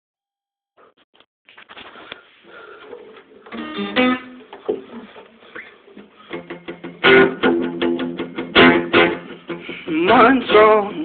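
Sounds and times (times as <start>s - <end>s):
acoustic guitar playing: 3.3s - 11.0s.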